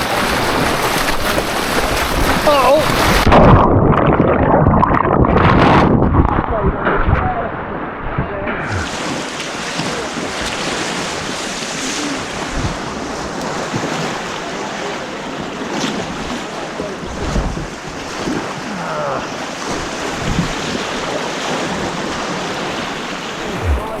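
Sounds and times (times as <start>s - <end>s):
white water rushing: 8.6s - 12.5s, 20.9s - 24.0s
wind buffeting microphone: 23.3s - 24.0s
low thuds: 23.4s - 24.0s.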